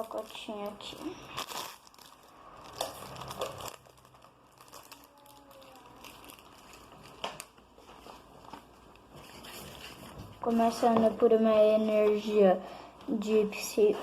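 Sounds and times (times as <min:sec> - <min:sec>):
wrapper crinkling and tearing: 0:00.0 - 0:10.0.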